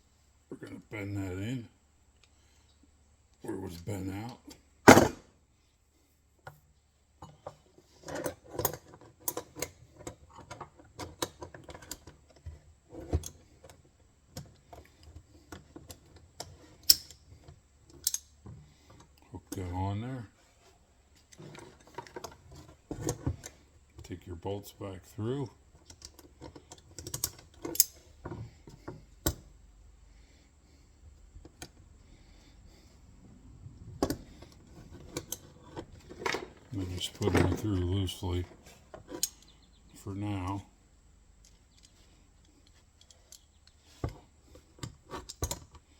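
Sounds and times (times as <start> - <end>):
quiet handling noises: 2.1 - 45.9
metal clicks and clinks: 17.9 - 18.3, 25.8 - 28.1, 39.1 - 39.6.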